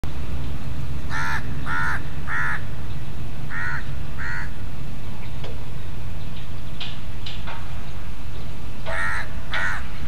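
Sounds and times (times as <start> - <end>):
steady low rumble: 0.0 - 10.0
bird calling: 1.1 - 4.6, 8.8 - 10.0.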